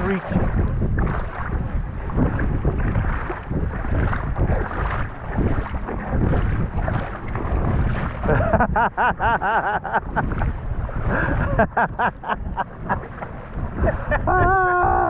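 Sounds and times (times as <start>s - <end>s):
wind buffeting microphone: 0.0s - 15.0s
person laughing: 8.2s - 10.4s, 11.1s - 13.2s, 13.8s - 15.0s.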